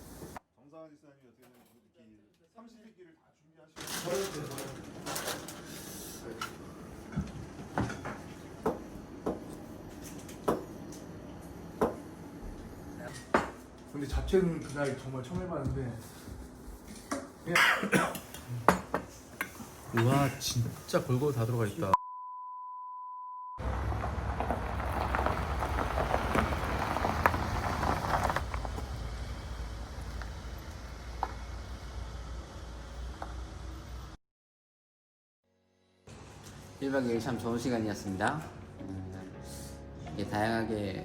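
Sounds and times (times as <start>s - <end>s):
steady beep tone: 22.0s - 23.6s
campfire crackling: 23.6s - 31.9s.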